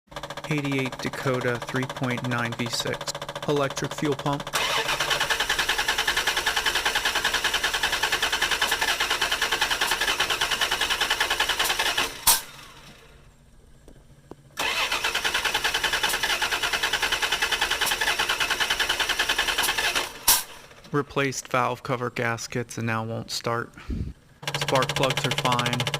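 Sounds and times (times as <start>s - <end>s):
starter click: 0.1s - 13.0s, 24.4s - 25.9s
engine cranking on starter: 0.1s - 13.2s, 14.6s - 21.0s, 24.4s - 25.9s.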